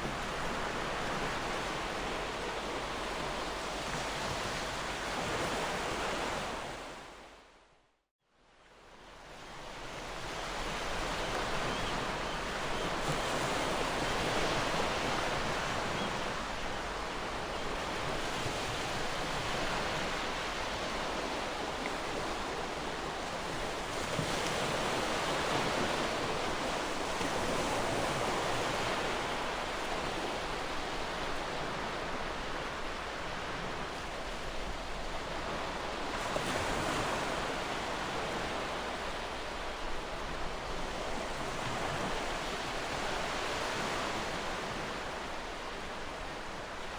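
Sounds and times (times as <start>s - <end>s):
ocean waves on shore: 8.8s - 46.9s.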